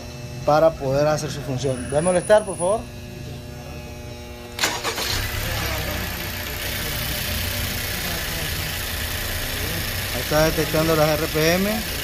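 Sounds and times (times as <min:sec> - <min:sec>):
car engine starter cranking: 0:04.6 - 0:06.0
car engine idling: 0:04.6 - 0:12.0.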